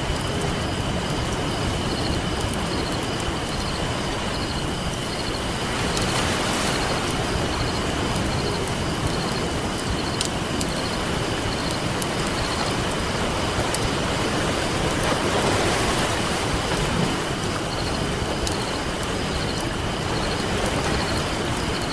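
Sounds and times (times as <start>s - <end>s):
ocean surf on a beach: 0.0s - 21.9s
campfire crackling and popping: 8.0s - 13.9s, 18.2s - 21.1s.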